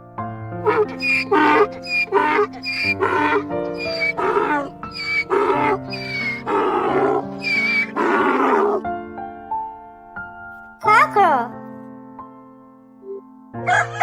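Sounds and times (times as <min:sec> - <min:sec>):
background music with held notes: 0:00.0 - 0:14.0
donkey braying: 0:00.6 - 0:08.8.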